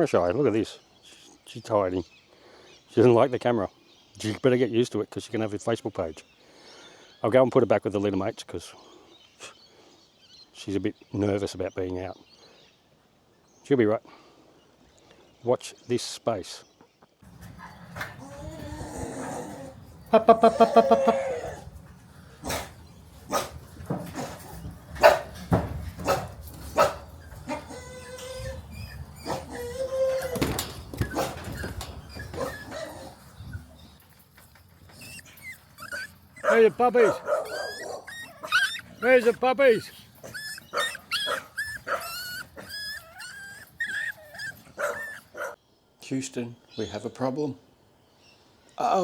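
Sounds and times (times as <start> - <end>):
puppies yapping: 17.2 - 45.6
puppy whining: 17.3 - 21.8, 26.8 - 34.0, 34.6 - 45.6.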